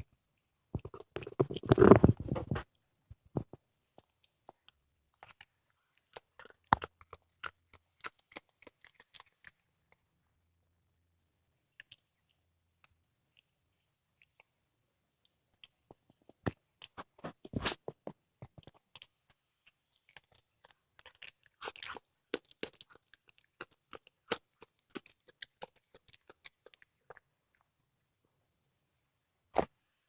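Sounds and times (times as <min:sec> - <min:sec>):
cat crunching bone: 0:04.0 - 0:09.6, 0:15.6 - 0:27.2.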